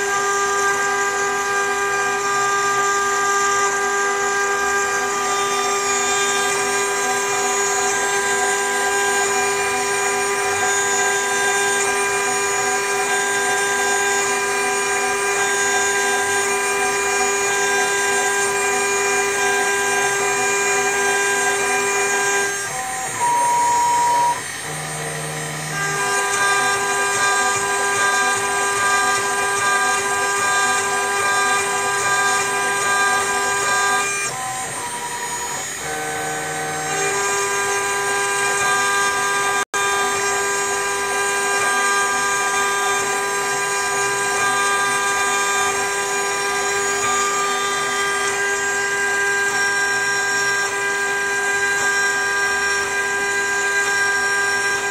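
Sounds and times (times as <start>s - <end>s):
router spindle motor whine: 0.0s - 54.9s
single tone: 22.6s - 24.7s.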